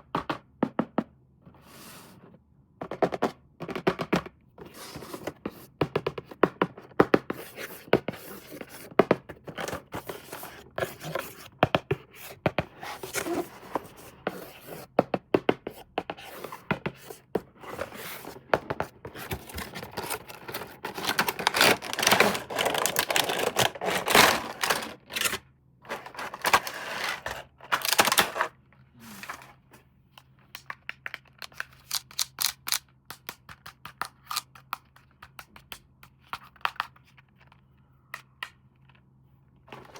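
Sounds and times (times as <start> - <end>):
packaging scraping or tearing: 19.3 - 28.5.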